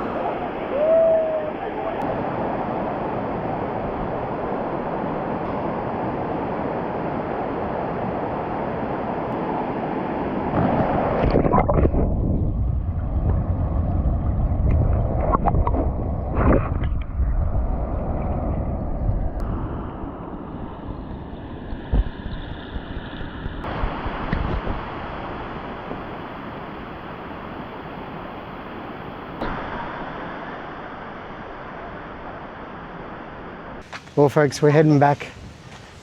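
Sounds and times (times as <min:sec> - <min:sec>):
waterfall rushing: 0:00.0 - 0:04.9
wind buffeting microphone: 0:00.0 - 0:33.9, 0:35.0 - 0:36.0.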